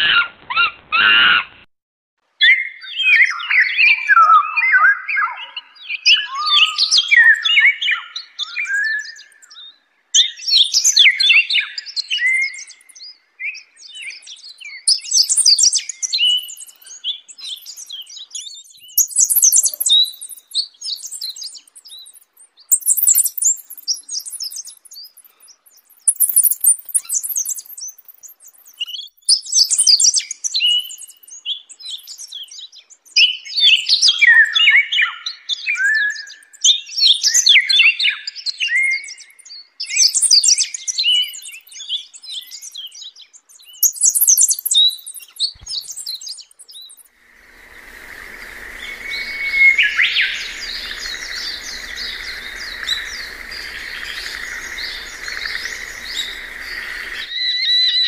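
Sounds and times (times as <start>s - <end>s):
birds chirping and chattering: 13.8s - 33.0s, 39.9s - 57.8s.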